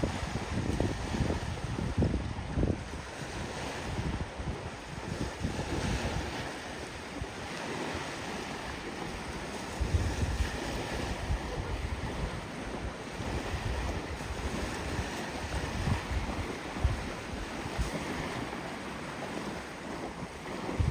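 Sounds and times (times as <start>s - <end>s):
surf on a beach: 0.0s - 20.9s
wind buffeting microphone: 0.0s - 20.9s.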